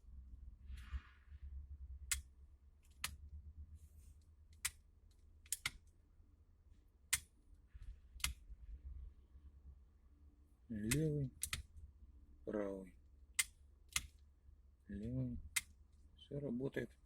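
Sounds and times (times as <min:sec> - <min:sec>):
low steady hum: 0:00.0 - 0:17.0
turn-signal switch clicks: 0:10.8 - 0:11.6.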